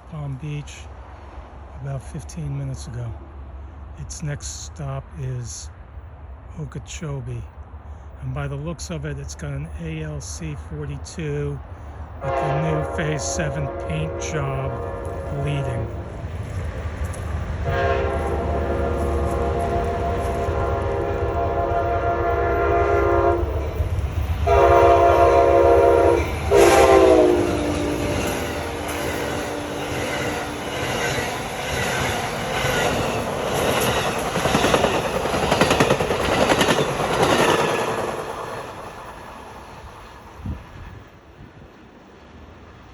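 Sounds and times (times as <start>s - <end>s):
locomotive engine rumble: 0.0s - 42.9s
train air horn blasts: 12.2s - 16.0s, 17.6s - 23.6s, 24.4s - 30.4s
wheels clacking over rail joints: 23.4s - 40.2s.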